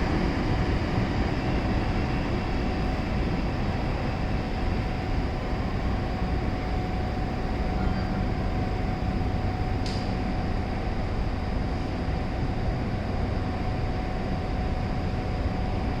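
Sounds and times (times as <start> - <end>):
train rumbling: 0.0 - 10.0
short click: 9.8 - 10.1.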